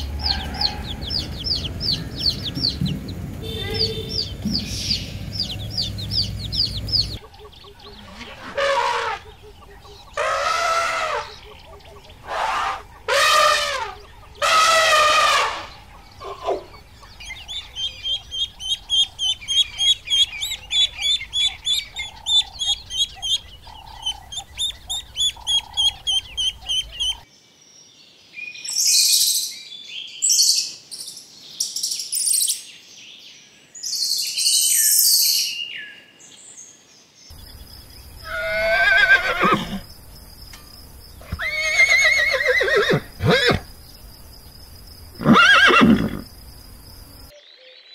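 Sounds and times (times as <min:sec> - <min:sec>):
rhythmic high bird chirps: 0:00.0 - 0:27.3, 0:37.3 - 0:47.3
elephant trumpeting: 0:07.7 - 0:16.8, 0:38.2 - 0:39.8, 0:41.2 - 0:43.9, 0:45.0 - 0:46.5
horse whinnies: 0:10.2 - 0:11.4, 0:38.2 - 0:39.9, 0:41.2 - 0:43.8, 0:45.2 - 0:46.4.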